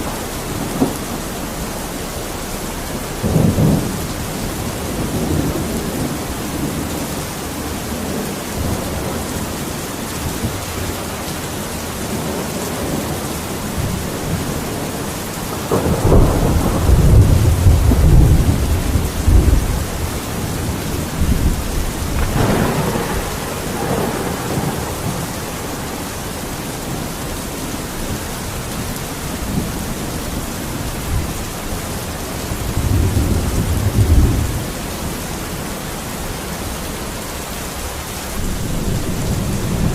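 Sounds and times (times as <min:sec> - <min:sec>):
thunder crack: 0:00.0 - 0:07.1, 0:15.6 - 0:27.0
heavy rain: 0:00.0 - 0:39.9
thunder rumbling: 0:00.0 - 0:39.9.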